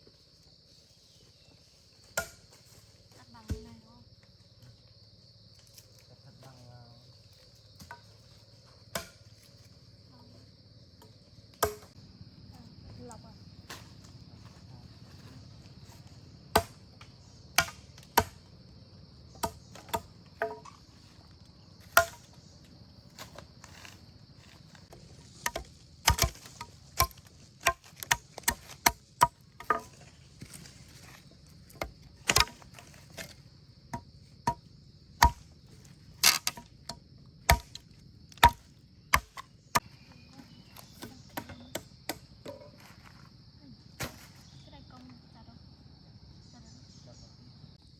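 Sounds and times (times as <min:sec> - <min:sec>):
high insect drone: 0:00.0 - 0:47.9
sharp chopping strikes: 0:11.6 - 0:11.9, 0:16.6 - 0:16.8, 0:17.6 - 0:18.4, 0:21.9 - 0:22.3, 0:25.4 - 0:29.9, 0:31.8 - 0:33.3, 0:35.2 - 0:35.5, 0:37.5 - 0:37.8, 0:38.4 - 0:39.5.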